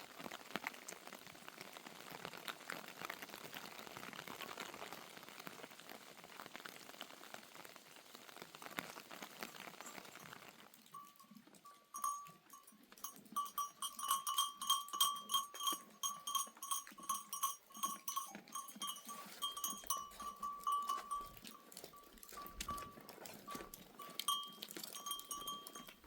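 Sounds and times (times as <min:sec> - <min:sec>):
livestock bells clanking: 0:11.0 - 0:26.0.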